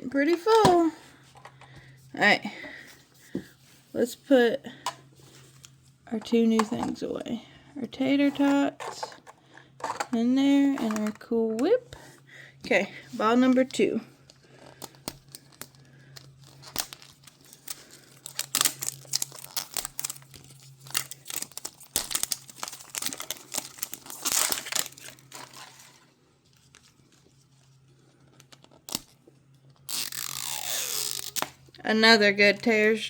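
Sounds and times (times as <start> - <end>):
plastic wrapper crinkling: 13.5 - 31.5.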